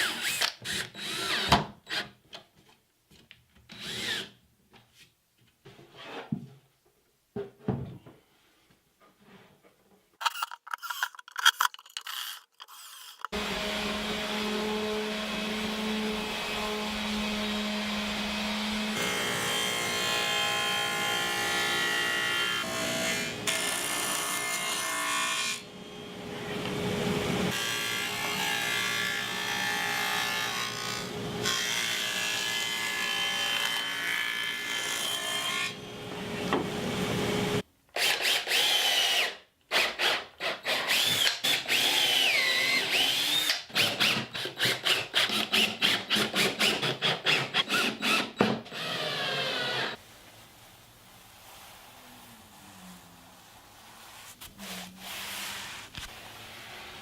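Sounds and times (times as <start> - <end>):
short scraping strokes: 10.2 - 13.4.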